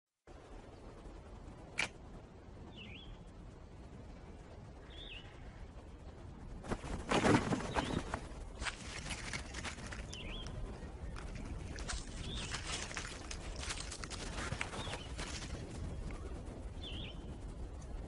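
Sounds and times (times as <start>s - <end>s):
rustling and shuffling: 6.6s - 16.7s
bird chirping: 9.9s - 13.3s.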